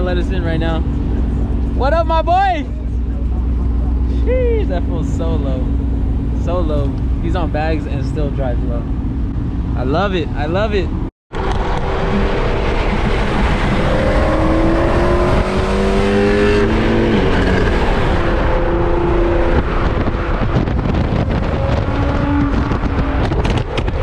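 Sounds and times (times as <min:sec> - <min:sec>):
road and wind noise: 0:00.0 - 0:24.0
car engine accelerating: 0:11.3 - 0:24.0.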